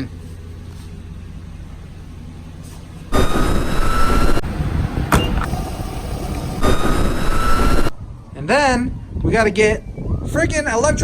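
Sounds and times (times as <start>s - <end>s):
vehicle low hum: 0.0s - 11.0s
loud rushing noise with rising whine: 3.1s - 9.2s.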